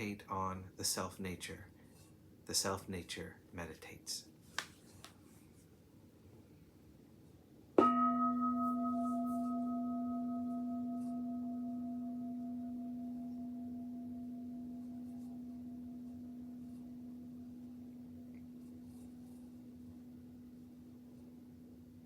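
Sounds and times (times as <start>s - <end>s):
meditation bell ringing: 7.8s - 21.6s.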